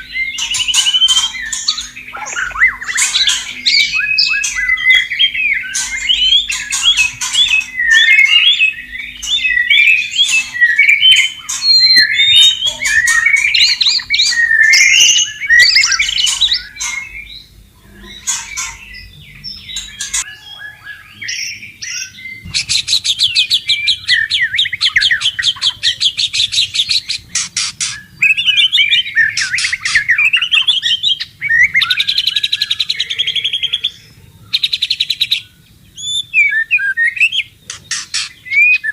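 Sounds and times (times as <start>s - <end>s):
bird singing whistled phrases: 0.0s - 17.5s, 18.1s - 38.9s.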